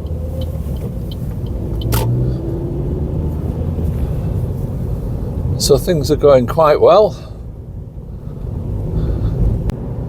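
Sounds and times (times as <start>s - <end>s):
car interior rumble: 0.0s - 10.0s.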